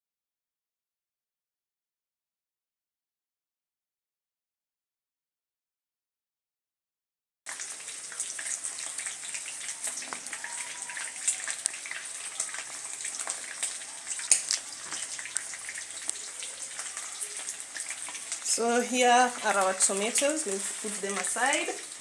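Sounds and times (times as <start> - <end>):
food sizzling in hot oil: 7.5 - 22.0.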